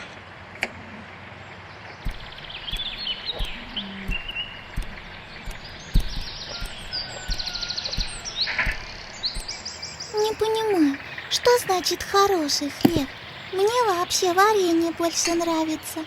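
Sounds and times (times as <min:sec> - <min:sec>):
birds chirping in trills: 0:01.3 - 0:16.0
soft taps and clicks: 0:02.0 - 0:09.6, 0:12.8 - 0:13.2.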